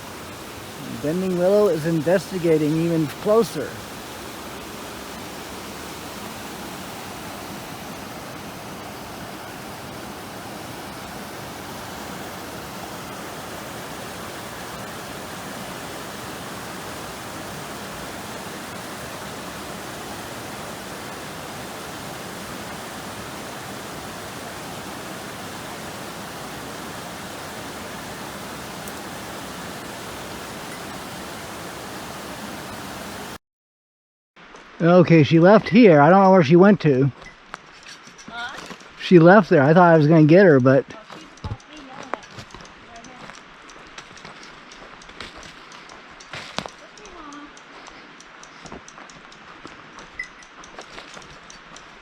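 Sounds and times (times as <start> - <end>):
river water rushing: 0.0 - 33.4.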